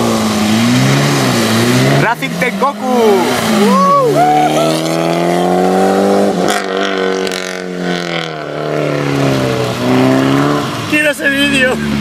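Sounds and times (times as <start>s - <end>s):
car engine passing by: 0.0s - 12.0s.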